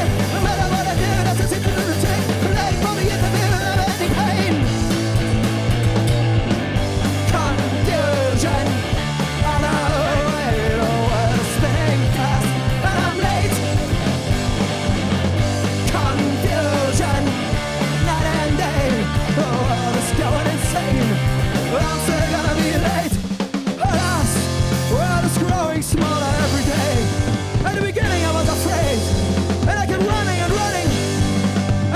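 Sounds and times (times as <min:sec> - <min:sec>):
person singing: 0:00.0 - 0:04.7, 0:07.2 - 0:13.8, 0:15.8 - 0:23.2, 0:23.8 - 0:31.1
live rock band playing: 0:00.0 - 0:31.9.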